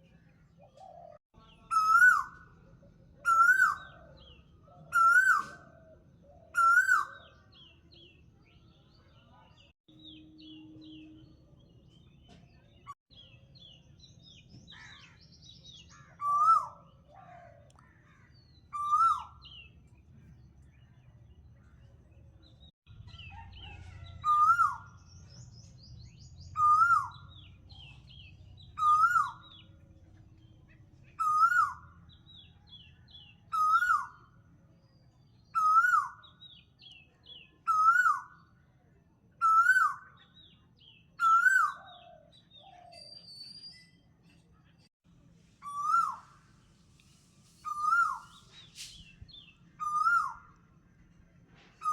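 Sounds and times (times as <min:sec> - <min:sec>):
birds chirping and trilling: 0:00.0 - 0:34.4, 0:35.2 - 0:38.5, 0:39.4 - 0:44.1, 0:45.6 - 0:46.8, 0:47.6 - 0:50.7
bird whistled call: 0:01.7 - 0:02.4, 0:03.2 - 0:04.0, 0:04.9 - 0:05.6, 0:06.5 - 0:07.3, 0:16.2 - 0:16.8, 0:18.7 - 0:19.6, 0:24.2 - 0:25.0, 0:26.5 - 0:27.3, 0:28.8 - 0:29.6, 0:33.5 - 0:34.2, 0:35.5 - 0:36.2, 0:45.6 - 0:46.4, 0:47.6 - 0:50.6.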